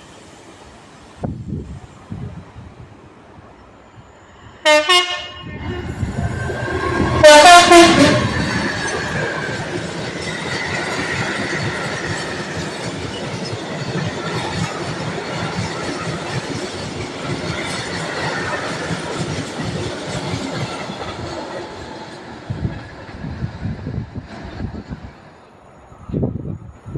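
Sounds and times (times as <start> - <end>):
faint high squeal: 5.4 - 12.6
train wheels clattering: 5.8 - 23.4.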